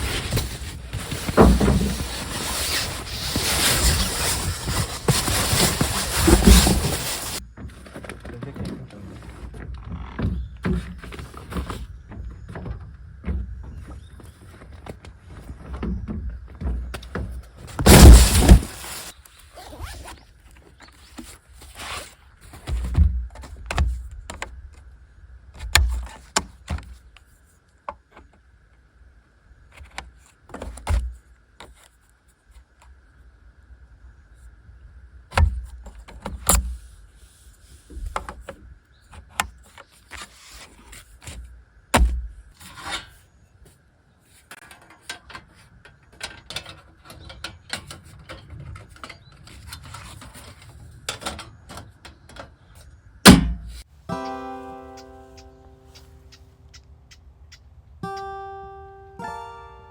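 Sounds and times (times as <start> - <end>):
folding tables knocking and clicking: 0.0 - 7.8
rustling clatter: 0.0 - 10.0, 16.9 - 19.2.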